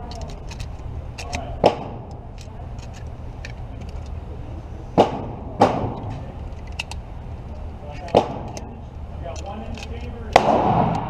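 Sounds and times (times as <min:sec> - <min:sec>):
steady low hum: 0:00.0 - 0:11.0
gunshots: 0:05.0 - 0:06.1, 0:10.3 - 0:11.0
faint distant gunfire cracks: 0:10.3 - 0:11.0.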